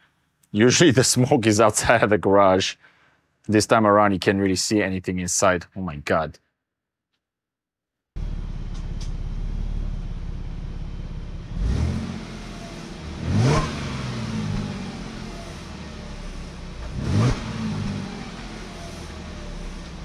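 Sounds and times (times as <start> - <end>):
car engine idling and revving: 8.2 - 20.0.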